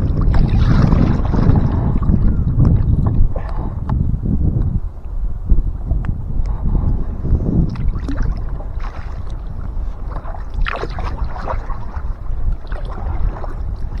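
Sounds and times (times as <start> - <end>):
paddle splashes: 0.0 - 2.1, 7.7 - 14.0
water washing against hull: 0.0 - 3.9, 6.5 - 14.0
wind on microphone: 0.0 - 14.0.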